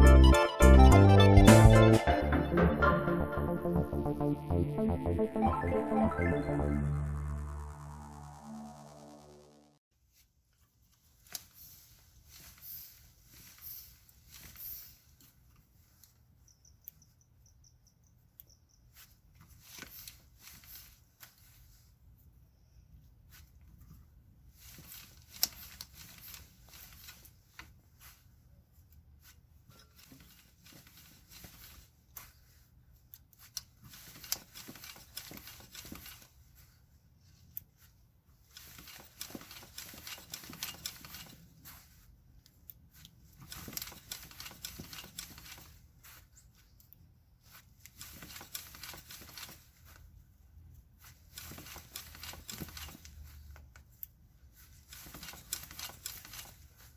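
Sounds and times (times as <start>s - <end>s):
rustling and scraping handling noises: 10.0s - 16.4s, 18.9s - 22.3s, 23.1s - 56.9s.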